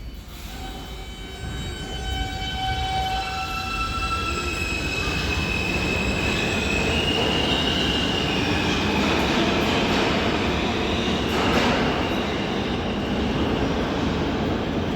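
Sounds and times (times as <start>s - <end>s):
subway train rumbling on rails: 0.0s - 14.9s
high wheel squeal: 0.4s - 8.9s.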